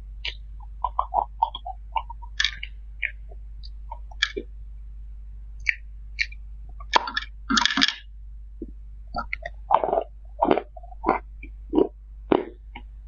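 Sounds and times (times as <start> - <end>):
faint low hum: 0.0 - 13.0
person chewing with wet smacks: 0.2 - 4.5, 9.1 - 12.9.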